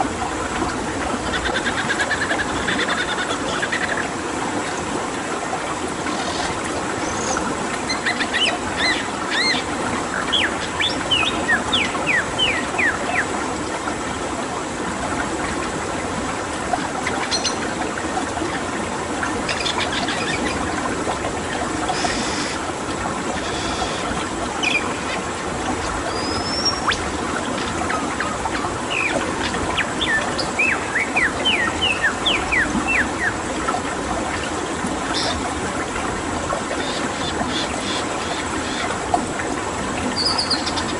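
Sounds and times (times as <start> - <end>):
running water: 0.0 - 40.9
birds calling: 6.0 - 13.4, 17.2 - 17.7, 21.9 - 22.7, 23.3 - 25.4, 26.0 - 33.4, 35.0 - 35.5, 36.7 - 39.0, 40.0 - 40.9.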